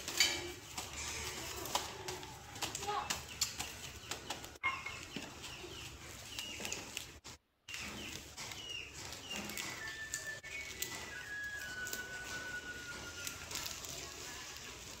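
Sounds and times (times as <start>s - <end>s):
banana leaves crackling: 0.0s - 15.0s
small bird chirping: 2.8s - 14.7s.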